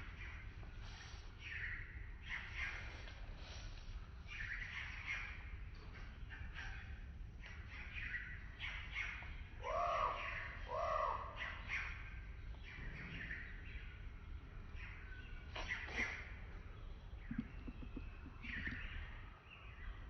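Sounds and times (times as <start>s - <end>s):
small birds chirping: 0.0s - 20.0s
harsh bird calls: 6.2s - 20.0s
low steady rumble: 16.5s - 19.9s.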